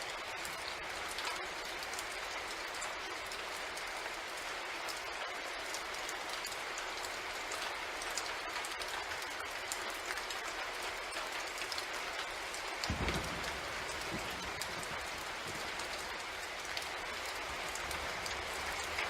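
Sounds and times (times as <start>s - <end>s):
rain hissing: 8.1s - 19.0s.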